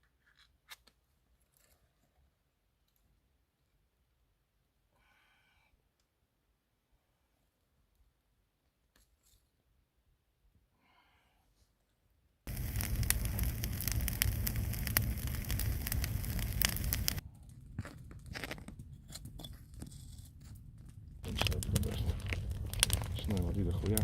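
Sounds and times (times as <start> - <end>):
ice crunching and scraping: 17.8 - 20.5, 21.2 - 24.0.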